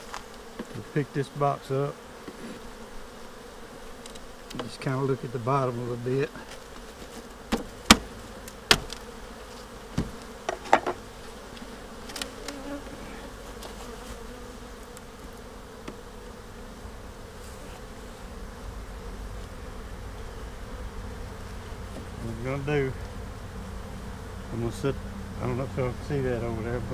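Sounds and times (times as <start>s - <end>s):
honeybees buzzing: 0.0s - 26.9s
sharp knocks: 7.5s - 8.1s, 8.7s - 9.0s.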